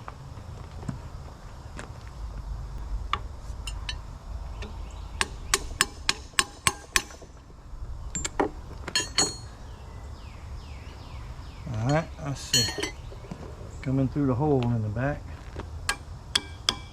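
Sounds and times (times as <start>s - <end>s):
hammer striking steel punch: 5.2s - 7.3s, 15.9s - 16.9s.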